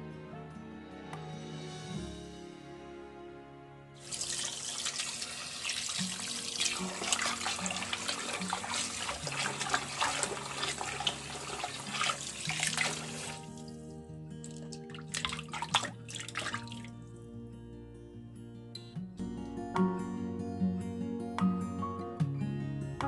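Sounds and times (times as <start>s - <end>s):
background music: 0.0s - 23.0s
water splashing in a metal bowl: 4.0s - 13.8s, 14.4s - 17.0s.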